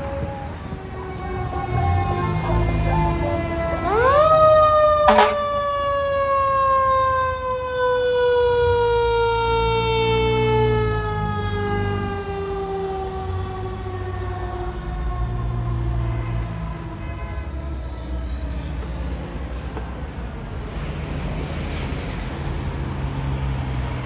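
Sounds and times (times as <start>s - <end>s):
truck engine rumbling: 0.0s - 5.9s, 9.6s - 24.0s
fire truck siren wailing: 0.0s - 19.8s.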